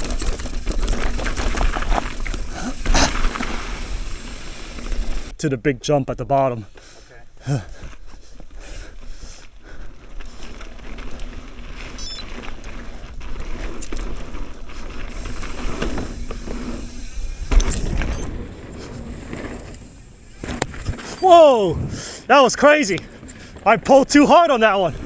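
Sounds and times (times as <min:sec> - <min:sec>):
bike rattling: 0:00.0 - 0:05.3, 0:06.8 - 0:25.0
bike tyres on dirt: 0:00.0 - 0:05.4, 0:06.4 - 0:25.0
wind buffeting microphone: 0:10.2 - 0:22.3, 0:22.9 - 0:25.0
heavy thump of bike landing: 0:15.1 - 0:21.0.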